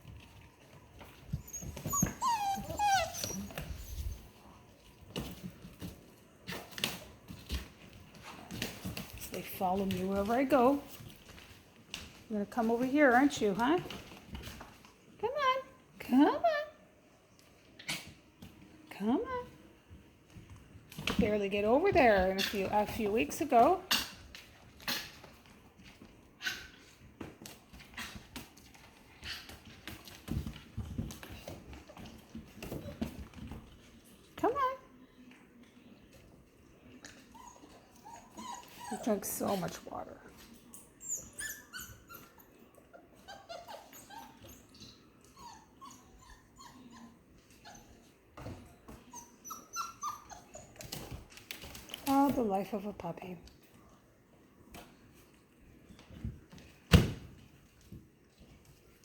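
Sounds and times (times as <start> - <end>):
puppies tapping and scuffling: 0.0 - 16.0, 17.3 - 59.0
puppies whimpering and yipping: 1.4 - 4.4, 37.2 - 39.5, 41.0 - 48.0, 49.0 - 51.0.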